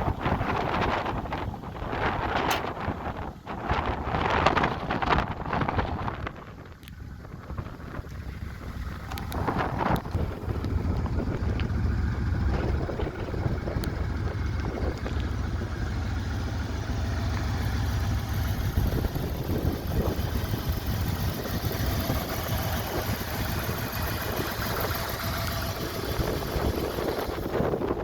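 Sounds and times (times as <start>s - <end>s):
pickup truck engine idling: 6.1s - 28.0s.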